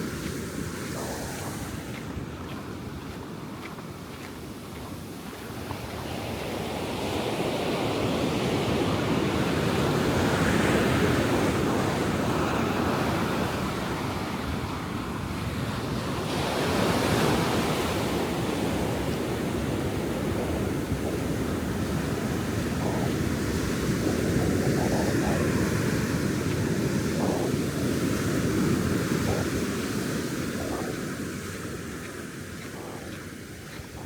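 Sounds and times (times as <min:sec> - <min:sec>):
wind on microphone: 0:00.0 - 0:34.0.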